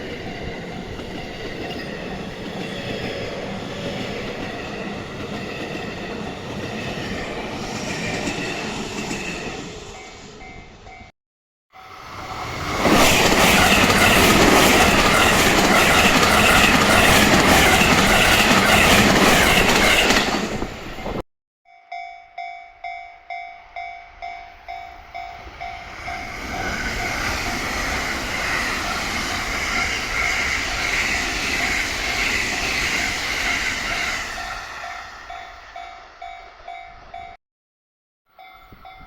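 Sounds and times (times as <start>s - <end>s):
train passing close by: 0.0s - 11.1s, 11.7s - 21.2s, 21.9s - 37.4s
level crossing warning bell: 21.7s - 27.4s, 38.4s - 39.0s.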